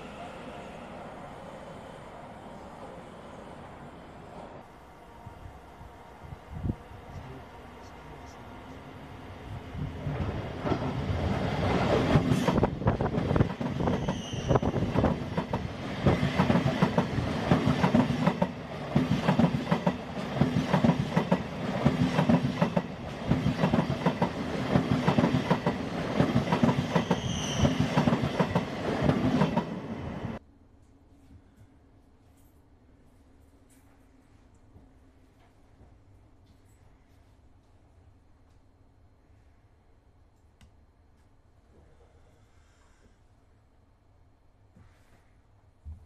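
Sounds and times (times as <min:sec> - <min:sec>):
train wheels clattering on rails: 0:10.0 - 0:29.8
high wheel squeals: 0:14.0 - 0:14.8, 0:27.0 - 0:27.8.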